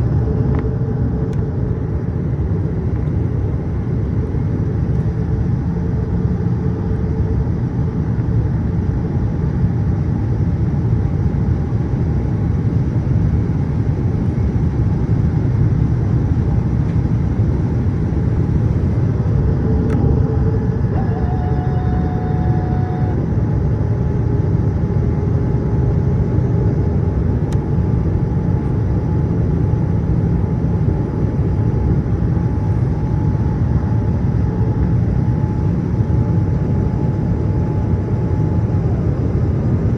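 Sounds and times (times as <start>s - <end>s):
airliner cabin drone: 0.0s - 39.9s
faint tone: 19.9s - 23.3s.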